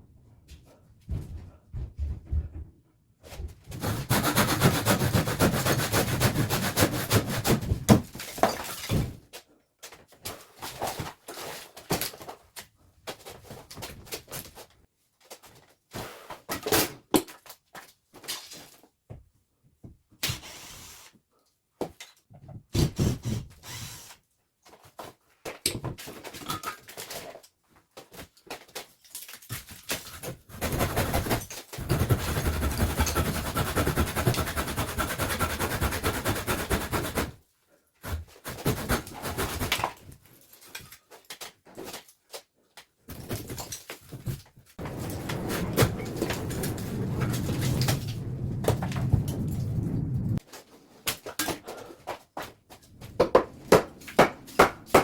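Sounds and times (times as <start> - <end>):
hand-tool demolition knocking: 30.5 - 37.4, 53.1 - 55.0.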